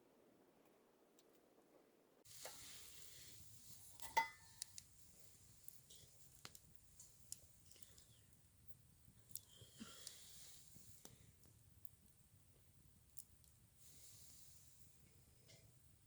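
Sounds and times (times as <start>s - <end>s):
food sizzling in a pan: 2.2s - 5.3s.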